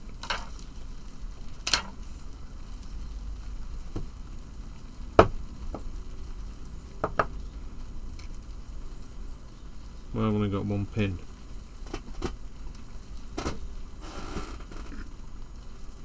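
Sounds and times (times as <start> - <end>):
small parts and tools clicking: 0.2 - 0.8, 1.6 - 2.3.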